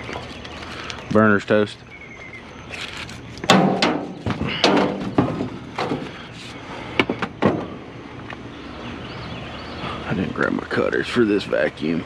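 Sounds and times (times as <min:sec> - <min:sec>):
scrap metal knocking and clanking: 0:03.4 - 0:06.2.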